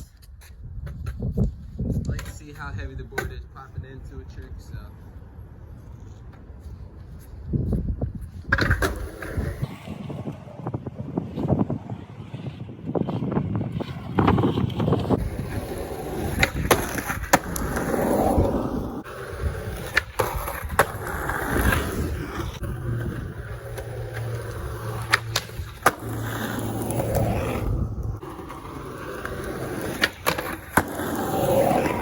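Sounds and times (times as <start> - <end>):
skateboard wheels rolling on pavement: 0.0 - 32.0
skateboard tail pops and landings: 8.4 - 10.4, 13.9 - 23.0, 23.6 - 32.0
skateboard trucks grinding on concrete: 8.4 - 32.0.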